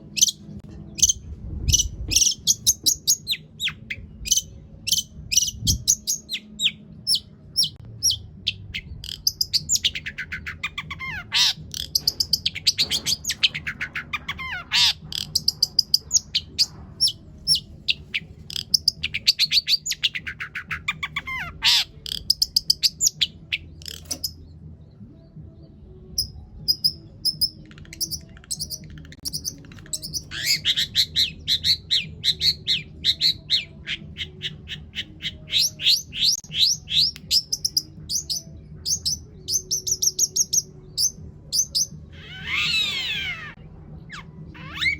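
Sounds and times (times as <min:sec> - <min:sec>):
steady low hum: 0:00.0 - 0:19.8
shrike singing: 0:00.0 - 0:24.5, 0:26.1 - 0:44.9.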